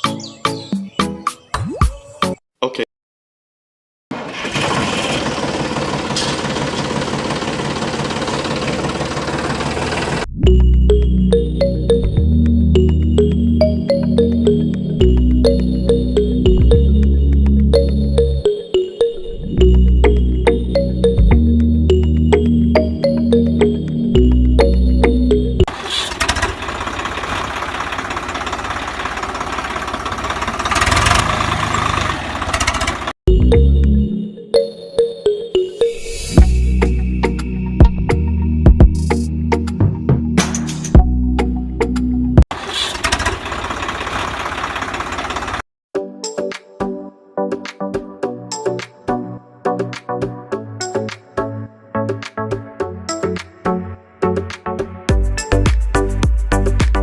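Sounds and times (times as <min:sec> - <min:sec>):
music: 0:00.0 - 0:02.4, 0:10.3 - 0:25.7, 0:33.3 - 0:42.4, 0:46.0 - 0:57.0
small motor rattling: 0:04.3 - 0:10.3, 0:25.8 - 0:33.1.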